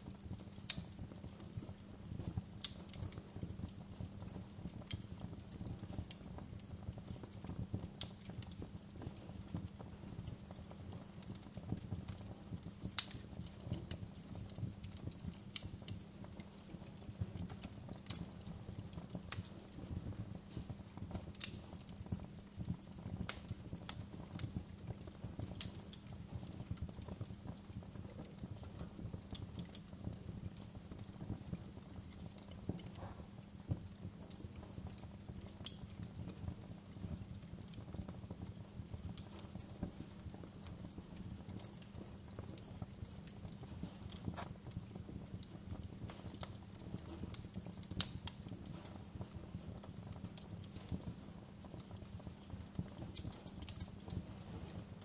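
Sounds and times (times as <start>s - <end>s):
wood fire crackling: 0.0s - 55.0s
sharp fire pops: 7.2s - 24.7s, 27.1s - 34.4s, 35.6s - 36.2s, 43.7s - 51.1s.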